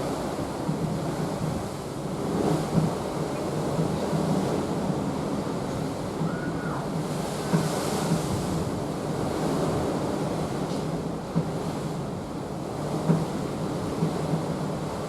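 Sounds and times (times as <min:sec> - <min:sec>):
wind on microphone: 0:00.0 - 0:12.0
sea water rushing past ship: 0:00.0 - 0:15.0.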